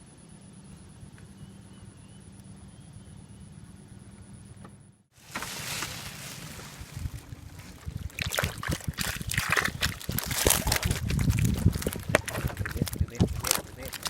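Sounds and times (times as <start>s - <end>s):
water sloshing and splashing: 5.2s - 14.0s.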